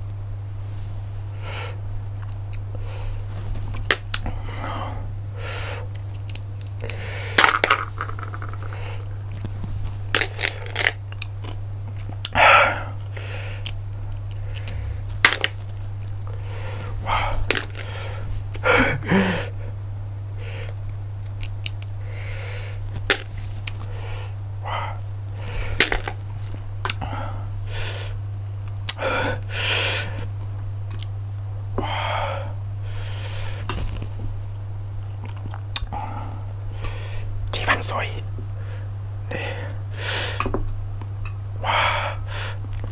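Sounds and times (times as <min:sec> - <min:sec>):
low electrical hum: 0:00.0 - 0:42.9
chewing and mouth sounds: 0:35.0 - 0:35.9.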